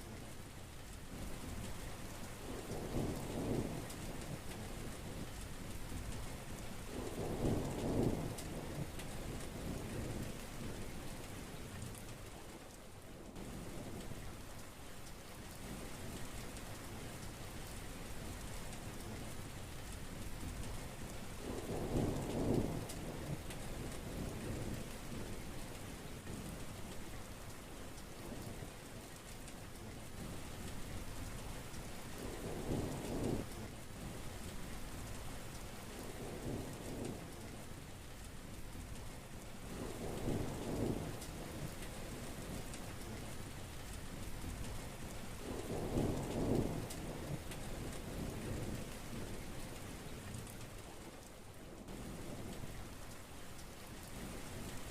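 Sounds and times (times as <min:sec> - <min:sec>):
heavy rain pouring: 0:00.0 - 0:54.9
thunder rumbling: 0:06.9 - 0:10.9, 0:21.4 - 0:25.4, 0:39.7 - 0:43.3, 0:45.4 - 0:51.2.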